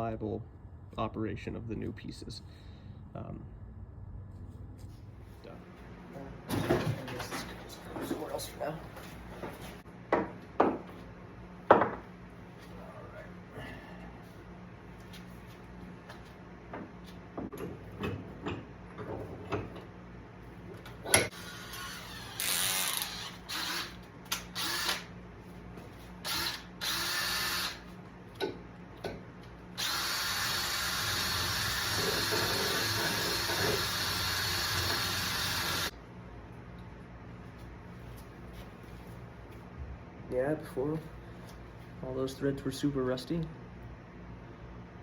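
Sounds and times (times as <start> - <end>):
power drill running: 21.3 - 25.1, 26.2 - 27.8, 29.8 - 35.9.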